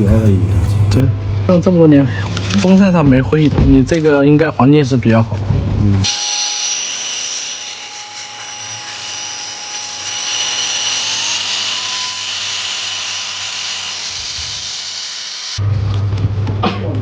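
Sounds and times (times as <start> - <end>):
power tool whining: 0.0 - 1.0.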